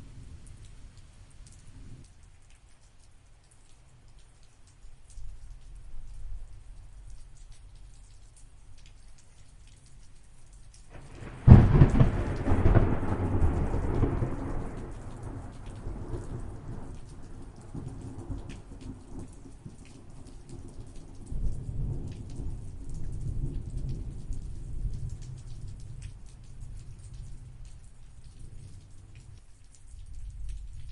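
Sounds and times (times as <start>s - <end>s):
rain pattering: 0.0s - 30.9s
thunder crack: 10.9s - 15.6s
low thunder rumble: 10.9s - 19.8s.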